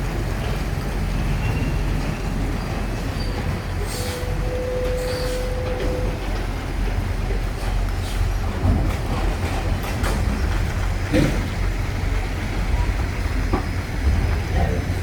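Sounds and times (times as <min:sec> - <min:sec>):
train rumbling on rails: 0:00.0 - 0:15.0
train wheel squeal: 0:01.2 - 0:06.2.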